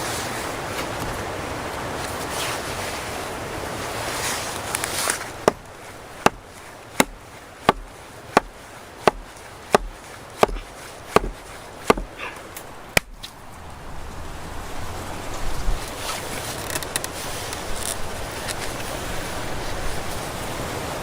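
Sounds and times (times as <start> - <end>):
wood chopping blows: 4.8 - 12.2, 13.0 - 13.3.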